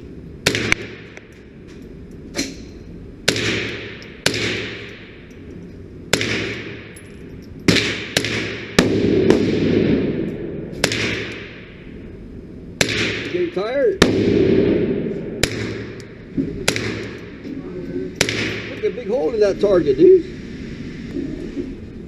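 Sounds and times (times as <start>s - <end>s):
rifle shots with echo: 0.4s - 1.3s, 3.2s - 5.3s, 6.1s - 7.0s, 7.7s - 11.9s, 12.8s - 17.4s, 18.1s - 19.2s.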